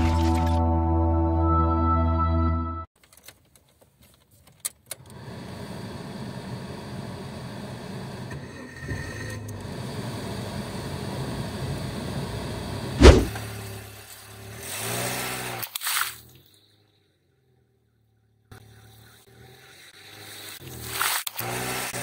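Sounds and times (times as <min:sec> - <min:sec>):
balloon bursting with loud bang: 0:13.0 - 0:13.4.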